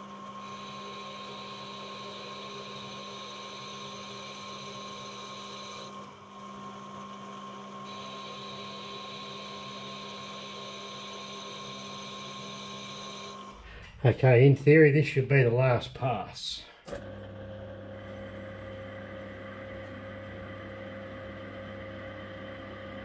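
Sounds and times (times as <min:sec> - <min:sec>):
metal lathe motor and gear whine: 0:00.0 - 0:13.6.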